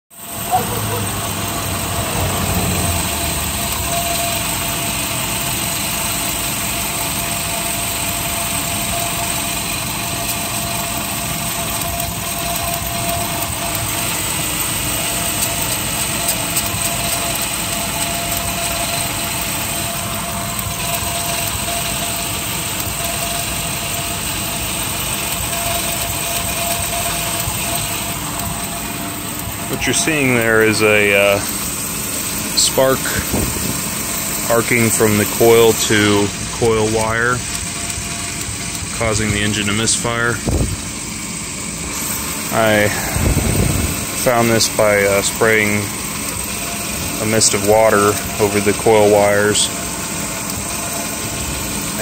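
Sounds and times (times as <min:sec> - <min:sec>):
car engine idling with misfires: 0:00.1 - 0:52.0.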